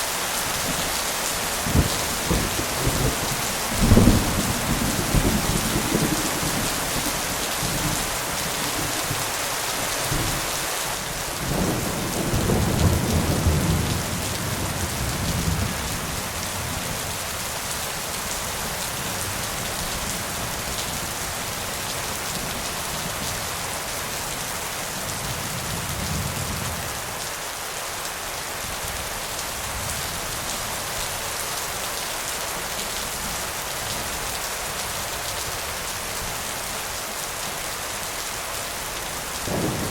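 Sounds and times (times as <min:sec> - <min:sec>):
heavy rain: 0:00.0 - 0:39.9
rolling thunder: 0:39.5 - 0:39.9.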